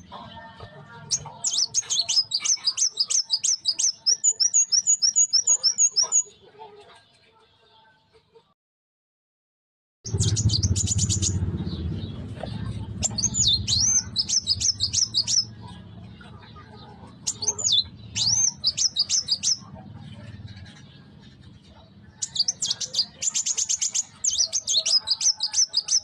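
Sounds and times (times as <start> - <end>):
low rumble: 10.1 - 16.4.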